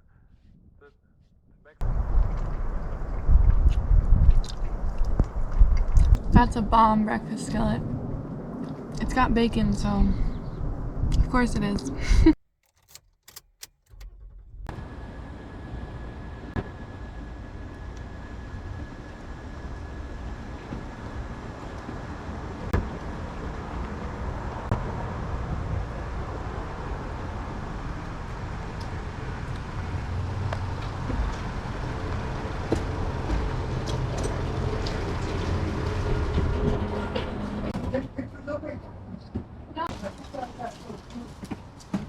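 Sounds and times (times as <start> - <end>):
road noise: 1.8 - 42.0
car engine: 12.6 - 37.8.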